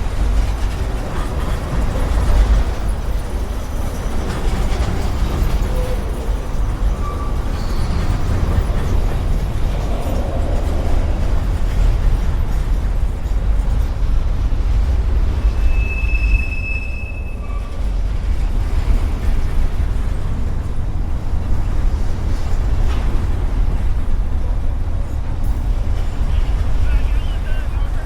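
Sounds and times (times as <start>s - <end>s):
freight train rumbling: 0.0s - 28.0s
high wheel squeal: 4.0s - 10.7s, 15.4s - 17.9s.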